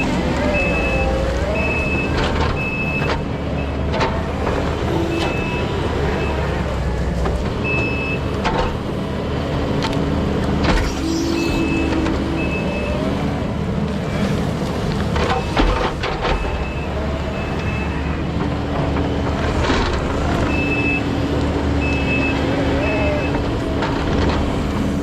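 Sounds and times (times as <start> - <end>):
backup alarm beeping: 0.0 - 3.9
metal clanks and knocks: 0.0 - 9.0, 15.0 - 17.0
diesel engine running: 0.0 - 25.0.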